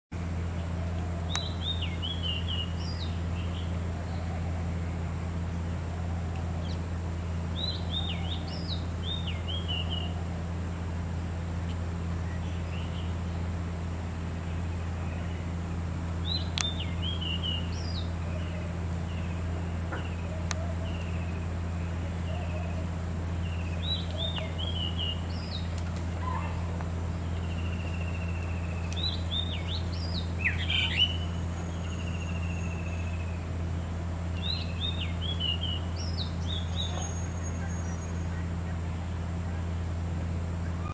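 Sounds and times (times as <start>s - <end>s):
low hum: 0.1s - 40.9s
bird whistled calls: 1.3s - 4.8s, 7.5s - 10.2s, 16.2s - 22.8s, 23.4s - 26.7s, 27.4s - 33.5s, 34.4s - 38.5s.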